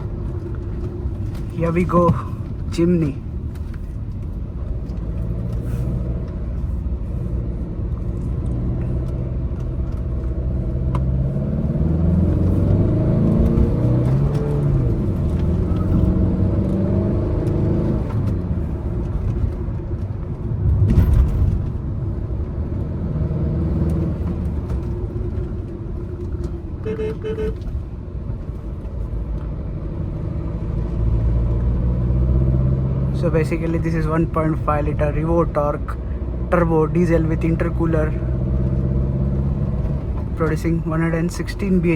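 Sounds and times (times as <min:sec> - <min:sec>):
diesel engine revving: 0:05.0 - 0:19.5, 0:20.5 - 0:25.5, 0:29.2 - 0:41.9.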